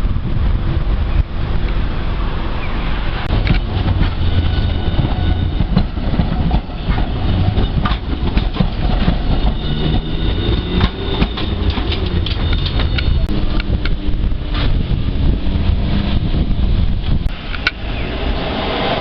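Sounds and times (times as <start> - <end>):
streetcar rumbling: 0.0 - 19.0
high whine or squeal: 2.6 - 6.1, 8.8 - 19.0
wheels clicking over rail joints: 3.3 - 15.8.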